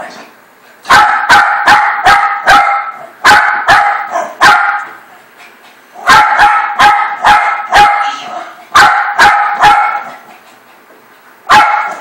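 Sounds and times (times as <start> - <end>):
dog barking: 0.9 - 5.0, 6.0 - 10.2, 11.5 - 12.0.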